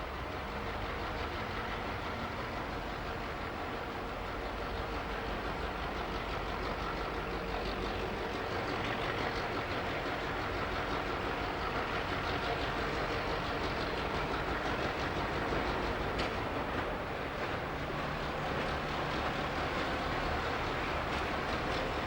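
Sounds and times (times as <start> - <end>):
train engine: 0.0 - 22.0
wheels rolling on rails: 7.8 - 22.0.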